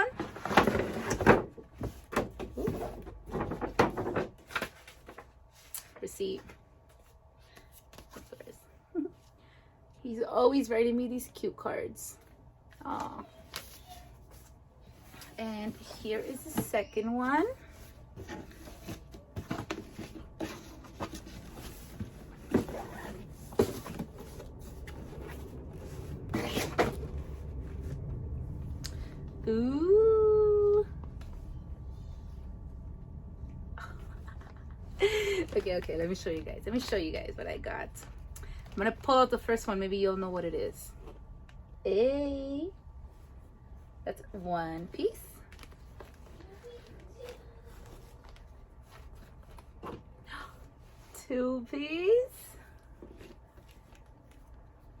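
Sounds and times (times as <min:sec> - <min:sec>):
packaging rustling and scraping: 0:13.4 - 0:27.6.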